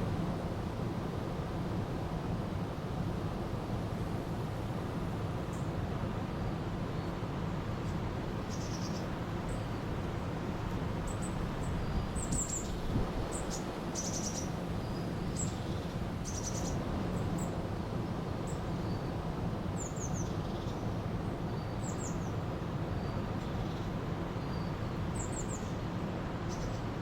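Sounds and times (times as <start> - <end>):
small birds chirping: 7.8 - 9.8, 11.0 - 16.8, 21.5 - 26.9.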